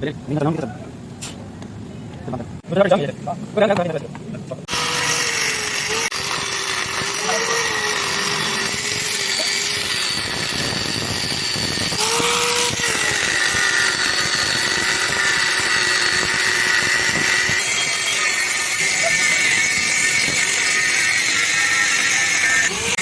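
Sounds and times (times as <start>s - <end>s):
power tool running under load: 4.7s - 23.0s.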